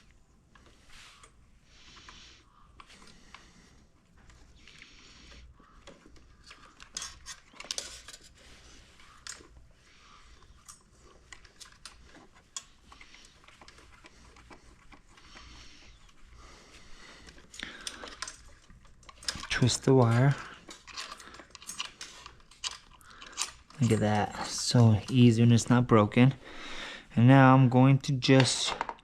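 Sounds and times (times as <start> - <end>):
small parts clicking and clinking: 4.2 - 16.3, 17.2 - 25.3.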